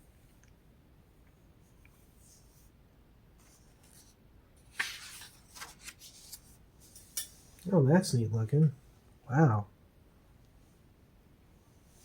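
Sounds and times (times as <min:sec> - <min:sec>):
book page turning: 0:03.4 - 0:06.6.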